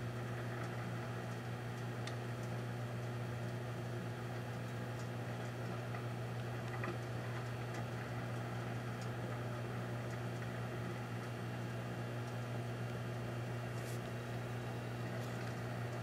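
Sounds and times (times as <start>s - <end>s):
microwave oven humming: 0.0s - 16.0s
faint ticks: 0.3s - 3.6s.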